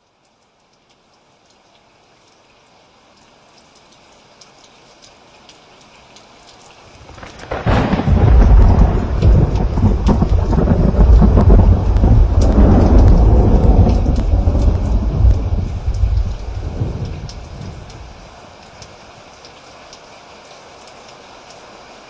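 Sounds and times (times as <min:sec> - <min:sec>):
rain pattering: 0:00.0 - 0:22.0
thunder rumbling: 0:07.0 - 0:18.4.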